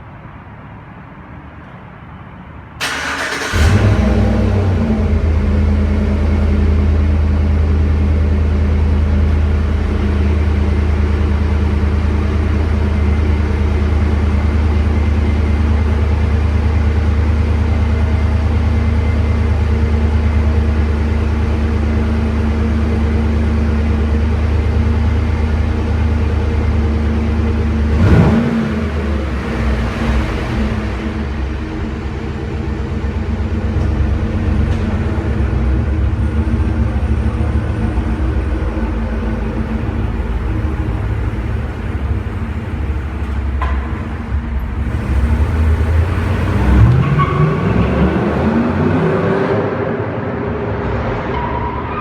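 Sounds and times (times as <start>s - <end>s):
engine revving: 2.8s - 7.0s, 27.8s - 32.4s, 33.8s - 49.8s
engine idling: 2.8s - 48.3s.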